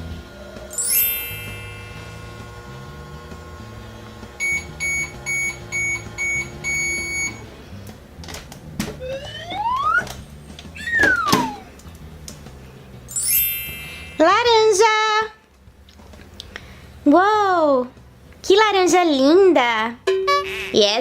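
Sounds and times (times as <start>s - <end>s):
background music: 0.0s - 21.0s
high sparkly chime: 0.7s - 2.2s, 13.1s - 14.3s
toy microwave beeps: 4.4s - 7.4s
rising whistle: 9.0s - 10.2s, 10.8s - 11.8s.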